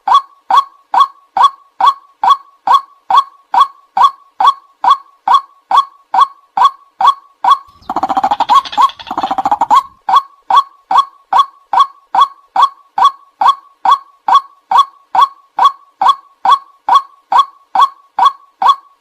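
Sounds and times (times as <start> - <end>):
waterhen calling: 7.7 - 10.0.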